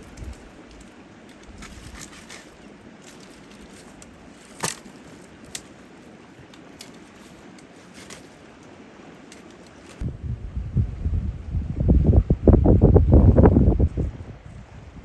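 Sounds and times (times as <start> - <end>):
faint outdoor hiss: 0.0 - 15.0
wind buffeting microphone: 10.0 - 15.0.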